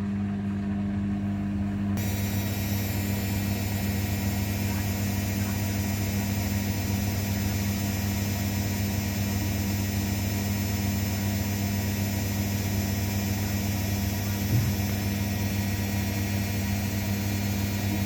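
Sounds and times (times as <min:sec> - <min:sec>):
washing machine humming: 0:00.0 - 0:18.0.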